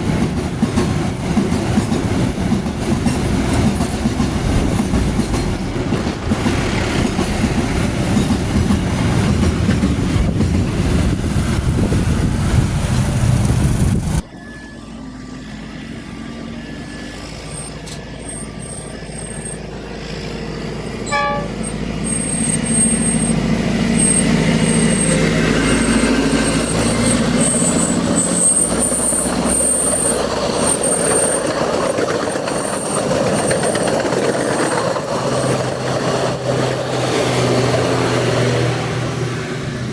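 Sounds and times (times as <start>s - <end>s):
train rumbling past: 0.0s - 39.9s
train horn toot: 21.0s - 23.1s
high-pitched tones: 21.1s - 23.2s.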